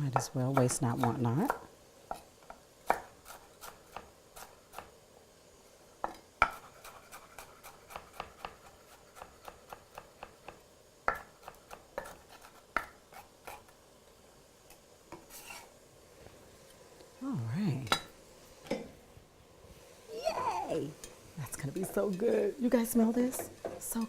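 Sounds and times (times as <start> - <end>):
knife chopping on cutting board: 2.8 - 4.9, 6.0 - 13.6.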